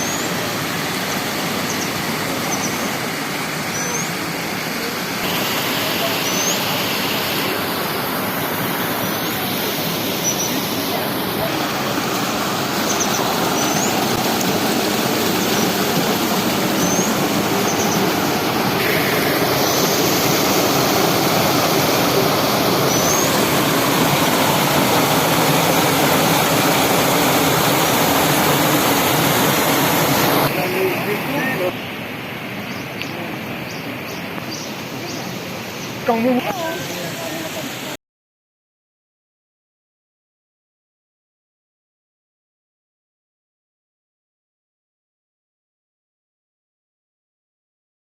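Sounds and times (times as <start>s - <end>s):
water rushing over waterfall: 0.0s - 38.0s
bird chirps: 1.6s - 2.9s, 5.9s - 7.1s, 10.1s - 10.6s, 12.8s - 14.0s, 16.8s - 18.2s, 22.8s - 23.5s.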